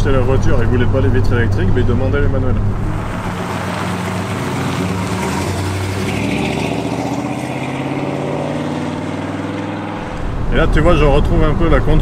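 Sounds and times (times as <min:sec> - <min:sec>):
car engine driving past: 0:02.5 - 0:12.0.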